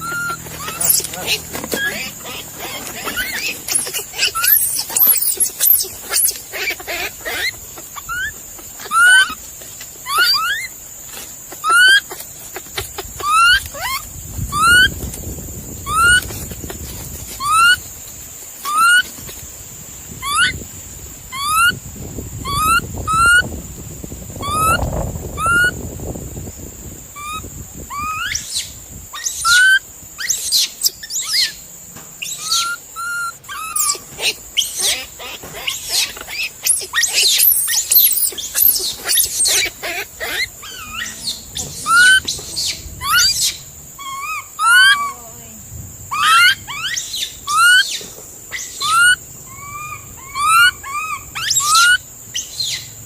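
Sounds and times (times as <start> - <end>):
animal chirping calls: 0.0 - 15.0, 15.8 - 16.8, 17.4 - 17.8, 18.6 - 19.1, 20.2 - 20.6, 21.3 - 21.8, 22.4 - 23.5, 24.4 - 25.8, 27.2 - 45.3, 46.1 - 53.0.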